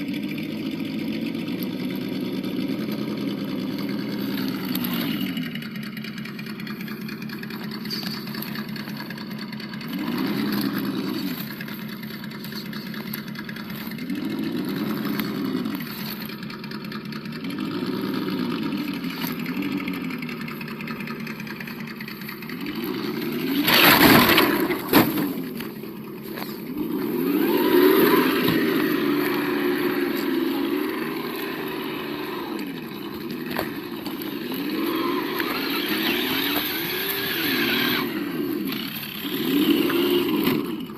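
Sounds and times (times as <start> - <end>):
simulated engine revving from speaker: 9.8 - 11.5, 13.8 - 16.2, 17.4 - 20.4, 22.5 - 25.7, 26.4 - 40.9.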